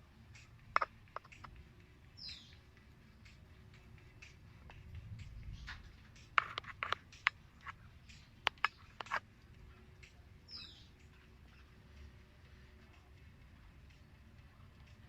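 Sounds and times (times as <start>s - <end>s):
small sharp clicks: 5.6s - 9.2s.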